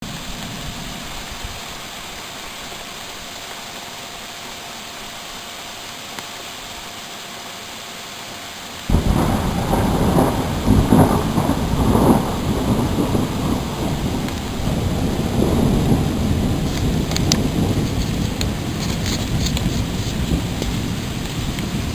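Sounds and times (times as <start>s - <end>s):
heavy rain hissing: 0.0s - 21.9s
thunder rumbling: 8.9s - 21.9s.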